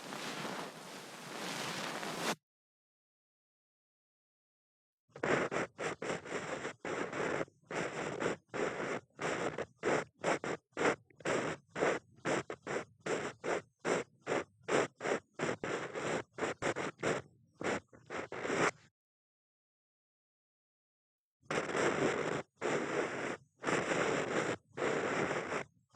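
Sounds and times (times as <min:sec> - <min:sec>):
ear pick scraping in ear: 0:00.0 - 0:02.4.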